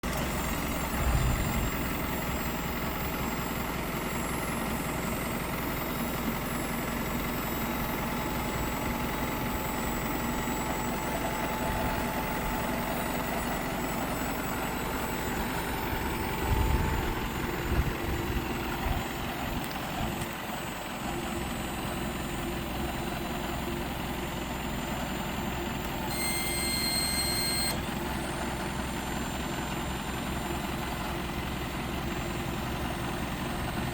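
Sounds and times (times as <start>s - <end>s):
diesel truck engine idling: 0.0s - 33.9s
high electronic beep: 9.2s - 17.2s, 26.0s - 28.6s.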